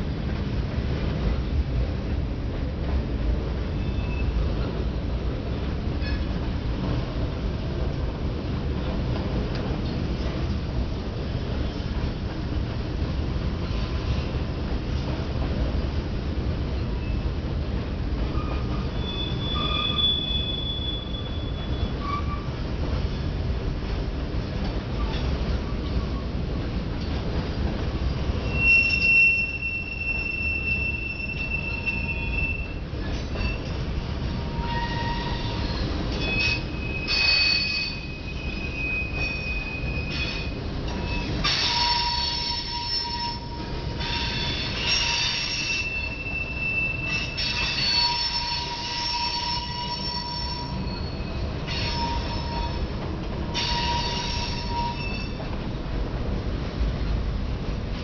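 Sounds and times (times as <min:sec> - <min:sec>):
freight cars rumbling: 0:00.0 - 0:58.0
train wheels squealing: 0:03.7 - 0:04.6, 0:16.8 - 0:17.3, 0:18.3 - 0:22.6, 0:28.4 - 0:33.8, 0:34.4 - 0:52.9, 0:53.5 - 0:55.5.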